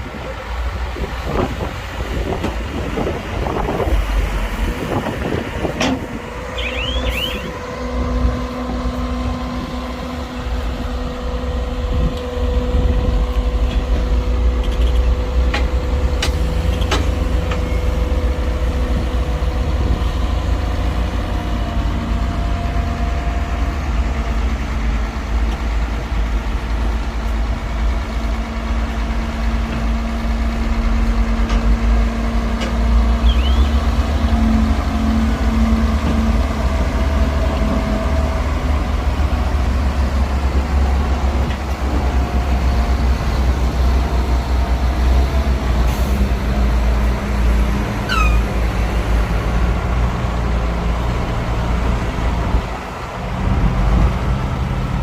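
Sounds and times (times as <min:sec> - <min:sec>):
diesel engine rumble: 0:00.0 - 0:55.0
high squeals: 0:06.5 - 0:07.6.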